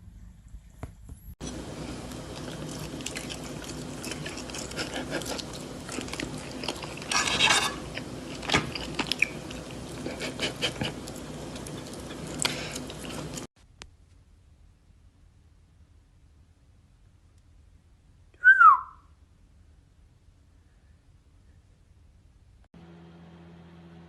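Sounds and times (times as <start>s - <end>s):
low steady hum: 0.0s - 24.0s
crunchy chewing: 1.4s - 13.5s.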